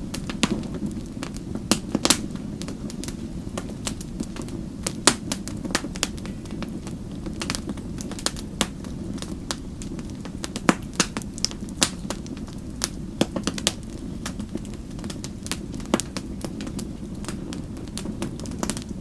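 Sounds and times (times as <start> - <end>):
low rumble of burning: 0.0 - 19.0
wood fire crackling and popping: 0.0 - 19.0.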